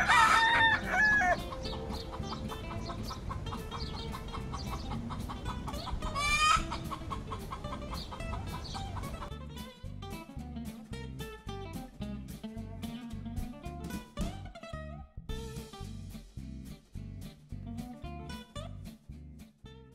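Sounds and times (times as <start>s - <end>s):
chicken clucking: 0.0s - 9.4s
background music with steady beat: 0.0s - 19.9s.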